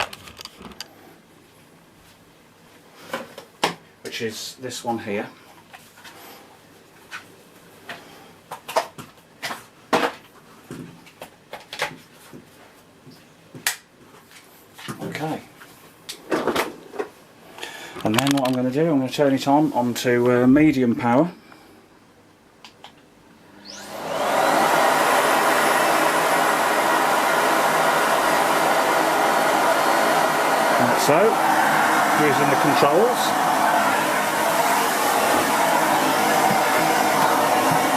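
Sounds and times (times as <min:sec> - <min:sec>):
vacuum cleaner running: 0:23.6 - 0:37.9.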